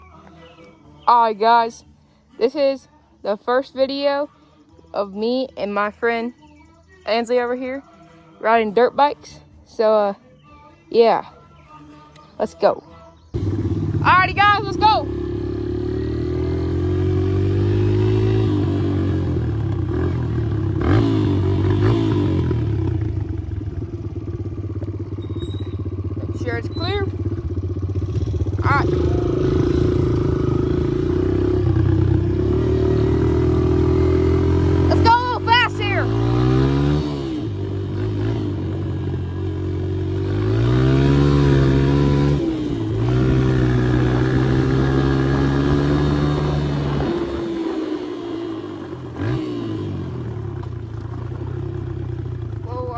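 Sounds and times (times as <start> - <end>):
dirt bike engine revving: 13.4 - 52.9.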